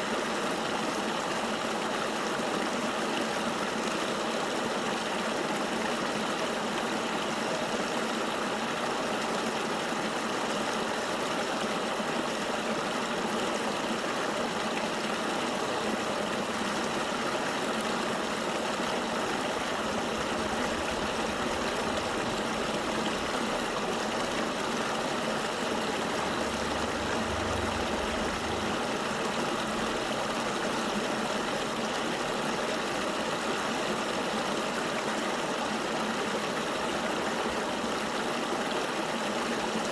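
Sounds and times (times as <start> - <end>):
river water rushing: 0.0 - 39.9
faint low rumble: 19.2 - 31.1.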